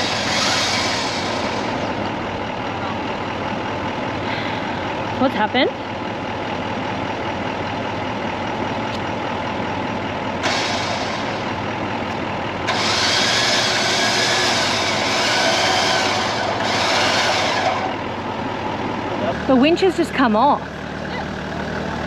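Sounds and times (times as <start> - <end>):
hissing whirr: 0.0 - 2.0, 10.4 - 11.6, 12.6 - 18.0
vehicle engine running: 0.0 - 22.0.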